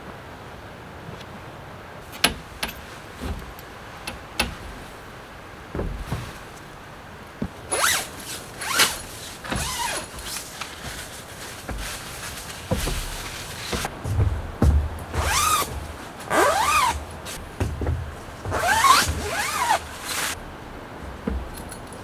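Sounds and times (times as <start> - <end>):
tent poles clicking on wood: 2.1 - 4.8, 7.4 - 20.4
zippers being pulled: 7.7 - 13.9, 15.1 - 17.4, 18.4 - 20.4.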